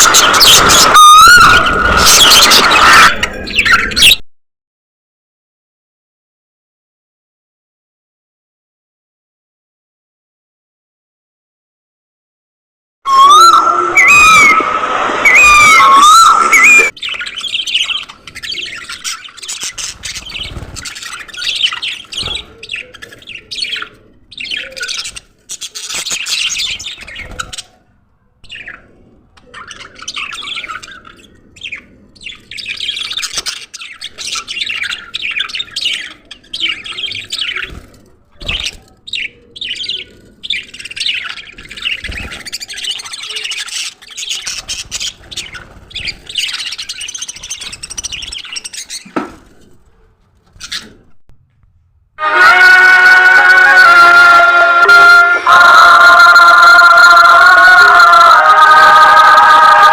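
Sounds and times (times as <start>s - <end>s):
budgerigars chattering and chirping: 16.9s - 27.7s.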